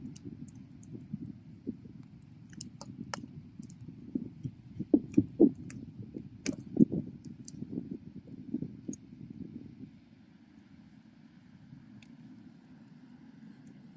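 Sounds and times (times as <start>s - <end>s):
fire crackling and popping: 1.9s - 7.8s.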